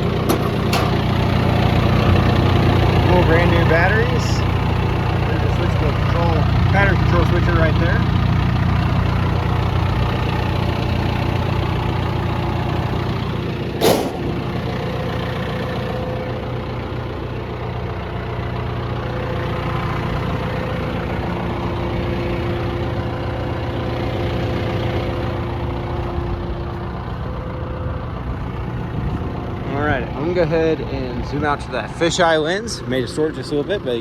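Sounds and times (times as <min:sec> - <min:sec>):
excavator diesel engine idling: 0:00.0 - 0:34.0
sharp knock: 0:13.8 - 0:14.4.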